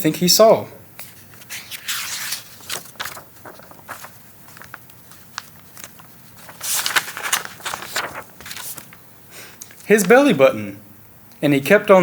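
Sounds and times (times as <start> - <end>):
paper page swishing: 1.0 - 9.0
small clicks and rustles: 2.7 - 9.0.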